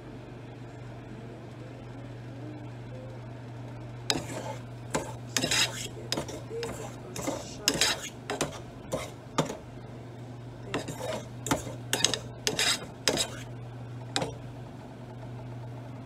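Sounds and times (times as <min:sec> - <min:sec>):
metal utensils clinking on dishes: 0:04.1 - 0:09.6, 0:10.7 - 0:13.4.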